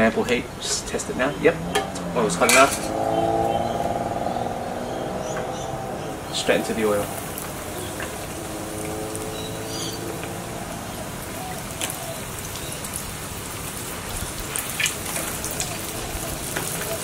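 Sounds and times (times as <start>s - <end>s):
fish deep-frying in oil: 6.4s - 17.0s.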